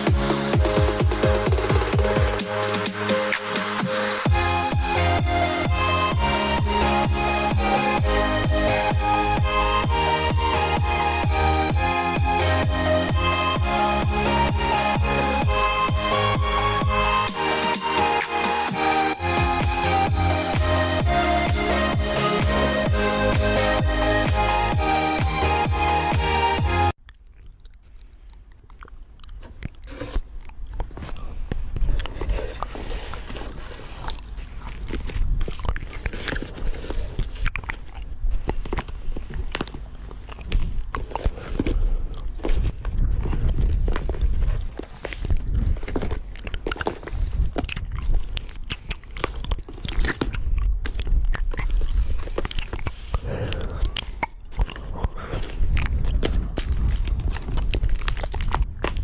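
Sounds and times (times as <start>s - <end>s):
electronic dance music: 0.0s - 26.9s.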